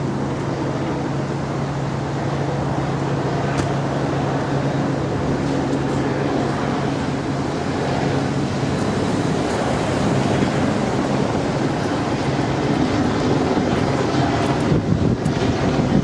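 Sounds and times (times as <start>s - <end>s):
low engine hum: 0.0s - 16.0s
wide rushing noise: 0.0s - 16.0s.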